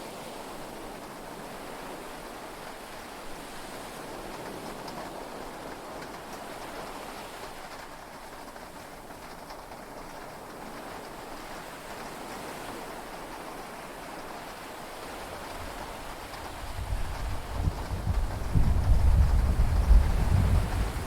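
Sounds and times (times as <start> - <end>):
heavy rain on boat cabin: 0.0 - 21.0
thunder rumble: 16.7 - 21.0.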